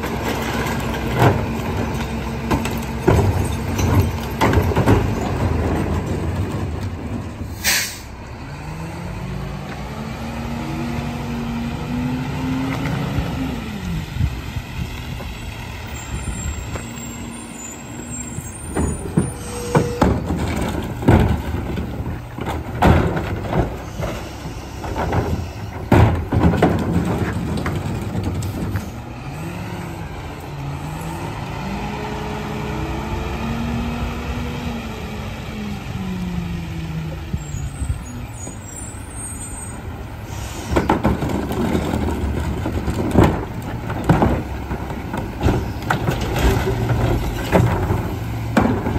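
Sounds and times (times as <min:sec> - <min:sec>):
garbage truck engine running: 0:00.0 - 0:48.9
sharp bangs and knocks: 0:18.7 - 0:28.9, 0:40.7 - 0:48.9.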